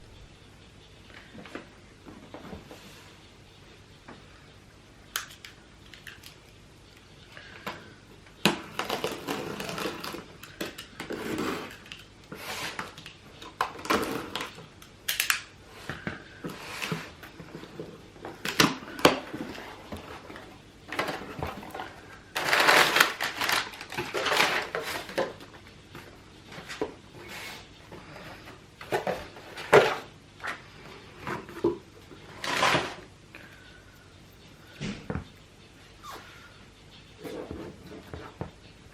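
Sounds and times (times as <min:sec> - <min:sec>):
cardboard and paper rustling: 0:08.6 - 0:14.6, 0:15.8 - 0:33.1.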